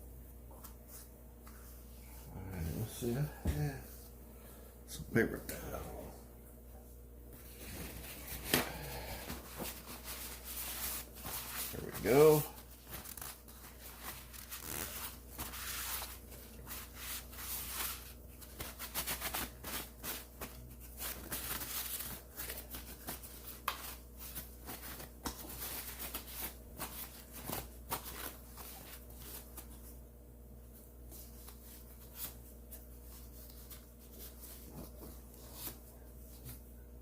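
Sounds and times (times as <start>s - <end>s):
paper towel scrubbing: 7.4s - 30.0s.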